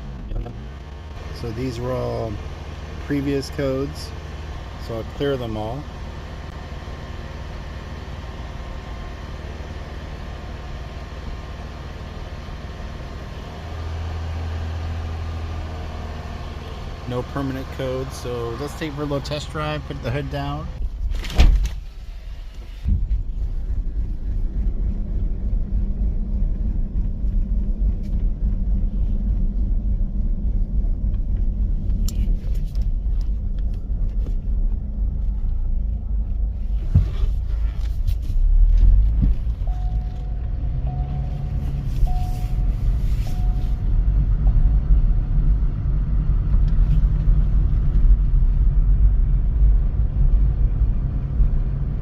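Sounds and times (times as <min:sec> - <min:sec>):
car engine rumbling: 0:00.0 - 0:52.0
short beeps: 0:39.6 - 0:43.8.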